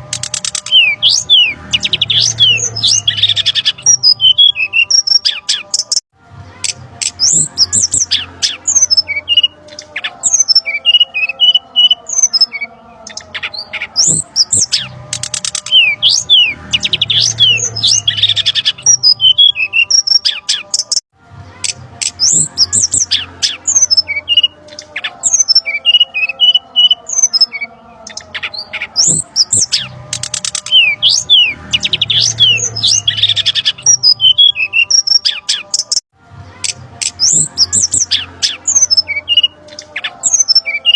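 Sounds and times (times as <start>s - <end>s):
bird chirps and trills: 0.0s - 6.0s, 6.6s - 21.0s, 21.6s - 36.0s, 36.6s - 40.9s.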